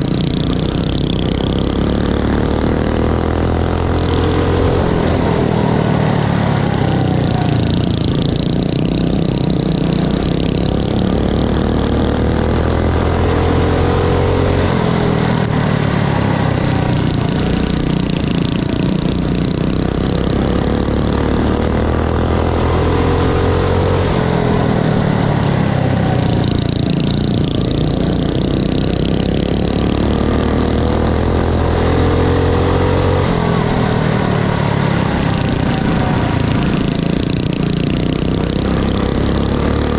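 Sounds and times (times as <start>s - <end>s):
mini bike engines racing: 0.0s - 39.9s.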